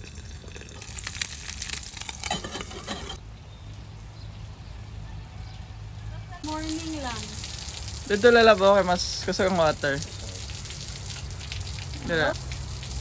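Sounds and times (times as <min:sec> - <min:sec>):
eggs sizzling in oil: 0:00.0 - 0:03.2, 0:06.4 - 0:13.0
oil crackling and popping: 0:00.0 - 0:03.2, 0:06.4 - 0:13.0.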